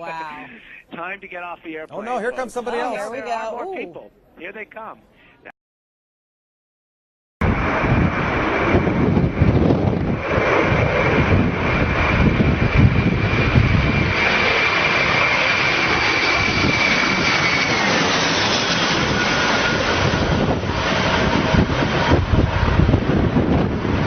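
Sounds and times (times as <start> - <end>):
jet engines running: 7.4 - 24.0.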